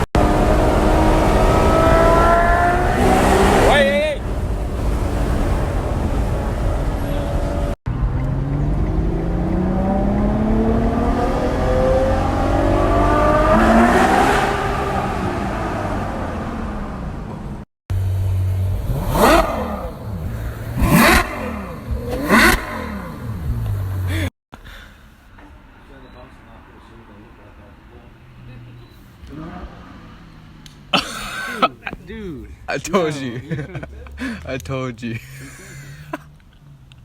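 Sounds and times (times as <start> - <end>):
car engine accelerating: 0.0 - 24.3, 28.2 - 31.0
car engine revving sharply: 0.0 - 24.3, 28.2 - 31.7.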